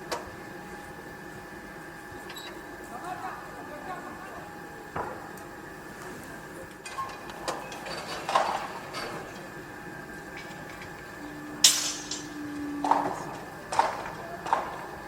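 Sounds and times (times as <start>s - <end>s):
steady background hum: 0.0s - 15.0s
metallic clanks and knocks: 11.6s - 14.6s.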